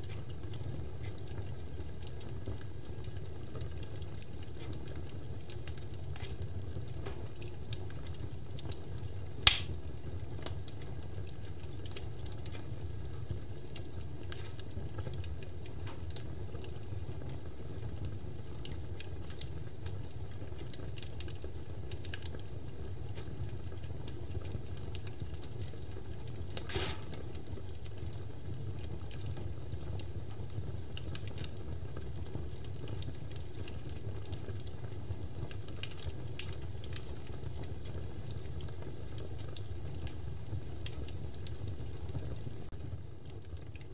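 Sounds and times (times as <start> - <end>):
bonfire rumbling: 0.0 - 29.6
wood crackling: 0.1 - 16.8, 24.2 - 28.2
sharp pop of fire: 9.5 - 9.8, 26.6 - 27.3.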